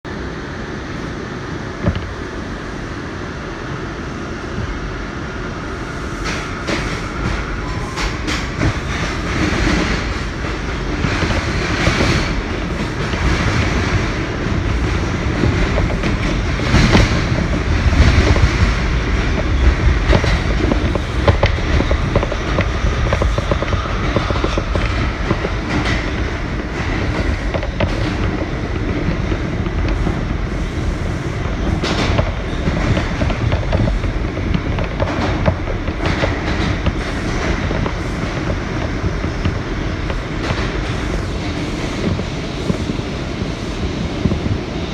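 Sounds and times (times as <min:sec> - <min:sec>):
subway wheels rumbling on rail: 0:00.0 - 0:44.9.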